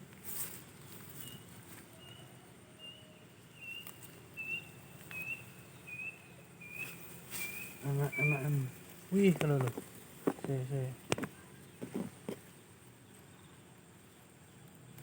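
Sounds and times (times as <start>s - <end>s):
bird chirping: 0.7s - 14.7s
faint clicks: 14.6s - 15.0s.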